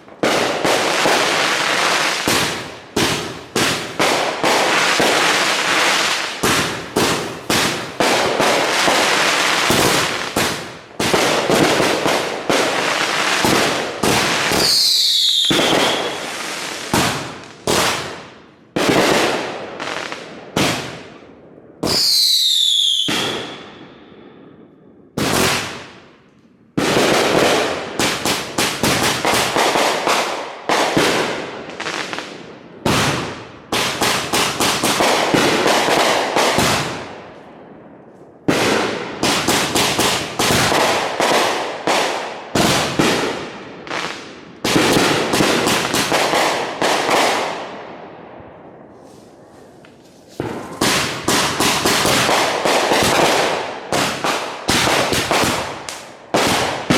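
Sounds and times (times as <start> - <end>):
fireworks bangs: 0.0 - 56.9
falling firework whistle: 14.5 - 16.5, 21.9 - 24.1.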